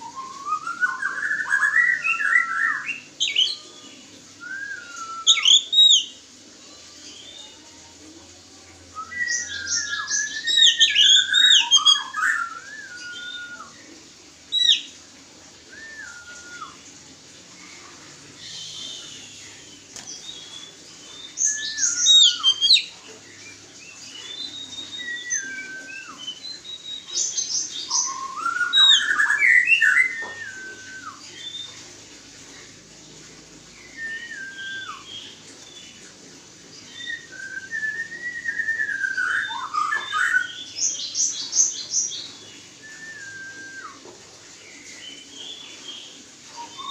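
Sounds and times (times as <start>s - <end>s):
bird whistling: 4.4s - 6.1s, 9.0s - 13.7s, 21.3s - 22.9s, 24.5s - 31.7s, 33.8s - 35.1s, 36.9s - 40.6s, 42.8s - 44.0s
bird song bursts: 18.4s - 31.8s.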